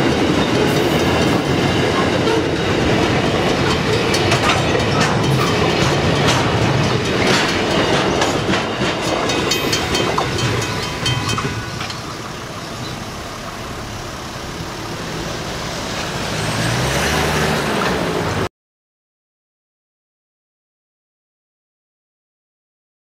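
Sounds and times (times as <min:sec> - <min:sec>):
train wagons clattering: 0:00.0 - 0:16.9
car engine rumbling: 0:10.2 - 0:18.5.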